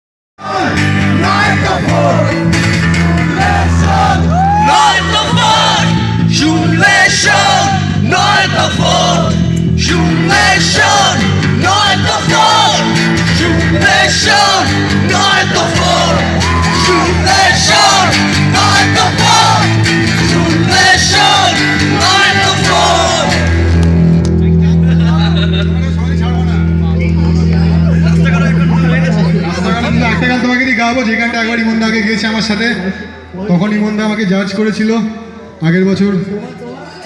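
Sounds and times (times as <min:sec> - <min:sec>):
crowd singing and shouting: 0:00.4 - 0:24.2, 0:27.2 - 0:30.6
live music: 0:00.4 - 0:33.5.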